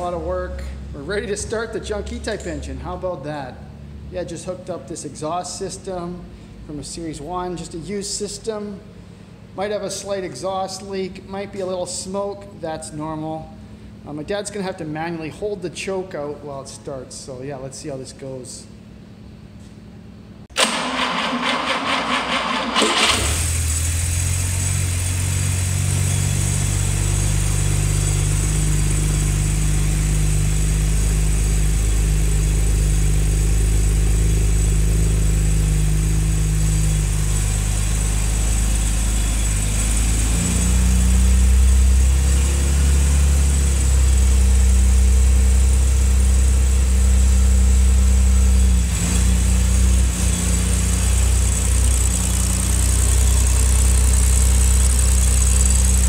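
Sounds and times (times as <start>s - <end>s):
car engine cranking on starter: 20.5s - 31.7s
exhaust leak noise: 20.6s - 56.0s
car engine running: 21.6s - 56.0s.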